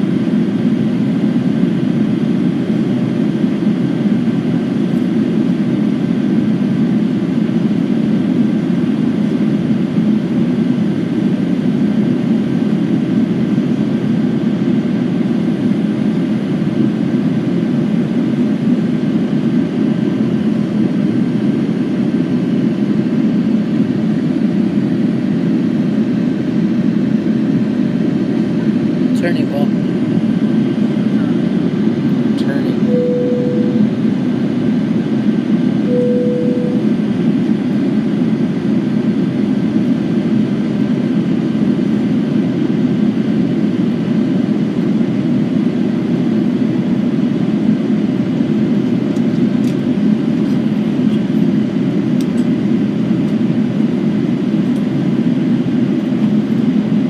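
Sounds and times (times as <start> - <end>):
airliner cabin noise: 0.0 - 57.0
faint steady tones: 32.8 - 33.9, 35.9 - 36.9.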